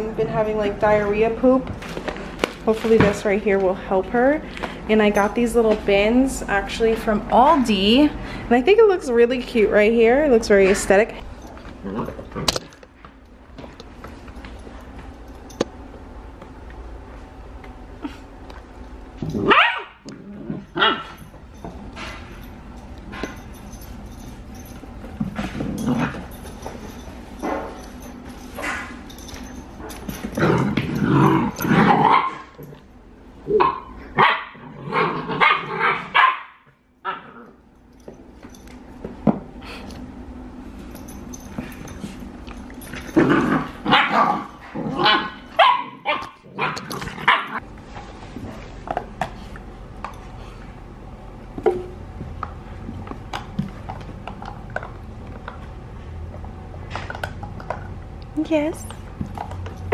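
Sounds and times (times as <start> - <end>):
puppies barking: 19.4 - 20.0, 31.4 - 32.6, 33.5 - 37.2, 43.8 - 47.6.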